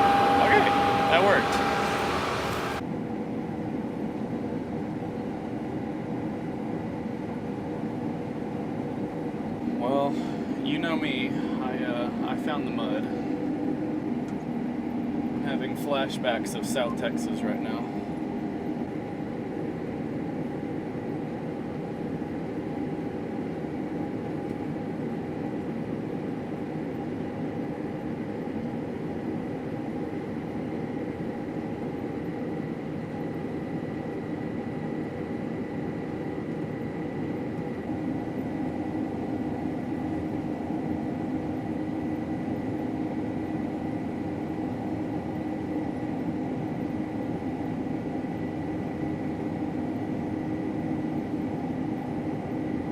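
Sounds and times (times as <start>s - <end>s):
combine harvester drone: 0.0s - 2.8s, 9.6s - 21.2s
faint high whine: 0.0s - 2.8s, 9.4s - 13.8s.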